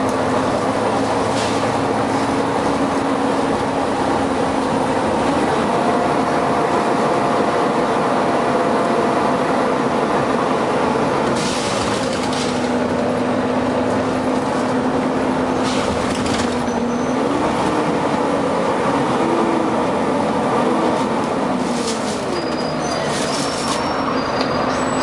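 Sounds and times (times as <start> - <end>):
bus engine and fan drone: 0.0 - 25.0
faint high squeals: 22.2 - 25.0.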